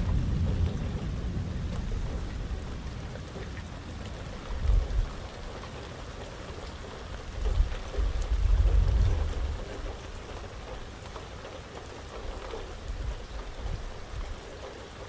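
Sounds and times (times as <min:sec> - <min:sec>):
thunder rumbles: 0:00.0 - 0:05.9, 0:07.4 - 0:10.7
raindrop ticks: 0:00.0 - 0:15.0
steady rain: 0:00.0 - 0:15.0.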